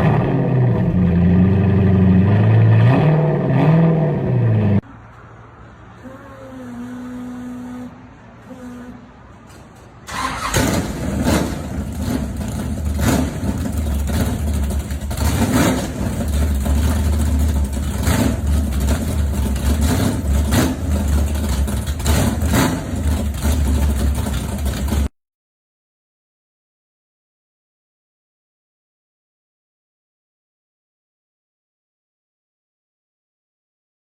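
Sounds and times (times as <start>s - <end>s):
loud engine starting and rumbling: 0.0s - 4.8s, 6.0s - 25.1s.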